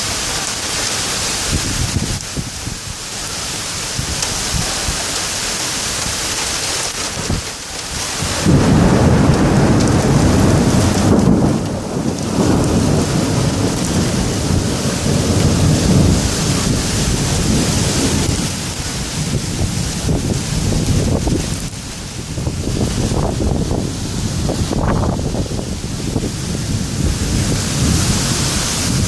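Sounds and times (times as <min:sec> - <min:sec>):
heavy rain: 0:00.0 - 0:29.0
deep rumble of thunder: 0:08.2 - 0:29.0.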